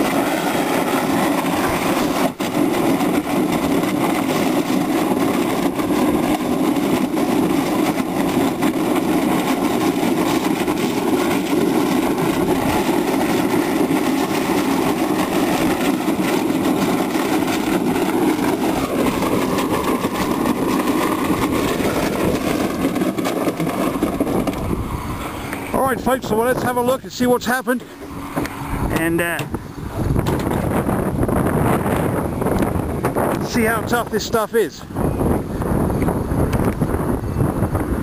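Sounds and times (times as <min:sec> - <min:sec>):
metal panel scraping on pavement: 0:00.0 - 0:25.7
truck engine running: 0:00.0 - 0:33.8.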